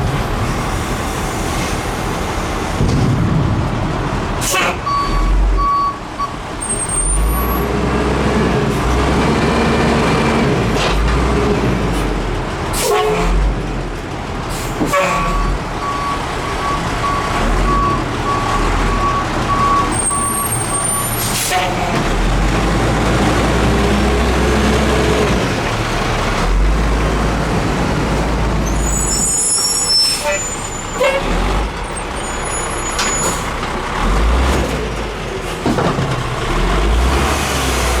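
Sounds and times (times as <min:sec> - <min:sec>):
garbage truck diesel engine: 0:00.0 - 0:38.0
backup alarm beeping: 0:04.8 - 0:06.4, 0:15.8 - 0:21.1.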